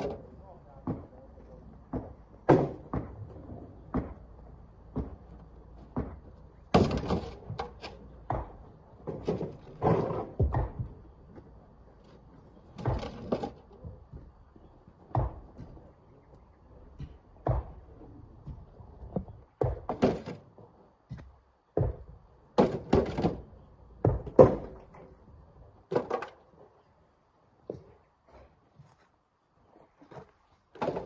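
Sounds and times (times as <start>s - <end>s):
rocks thudding into truck: 5.9s - 7.6s, 12.7s - 13.6s.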